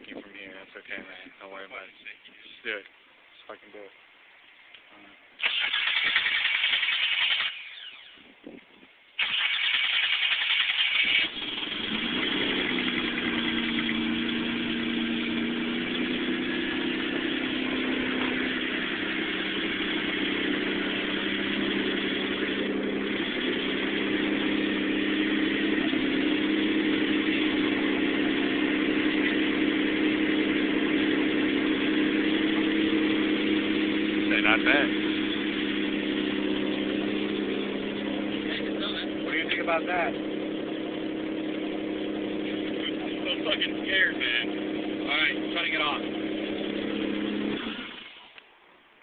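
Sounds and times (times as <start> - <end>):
engine starter cranking: 5.4 - 8.2, 9.2 - 14.9
car engine idling: 9.2 - 48.3.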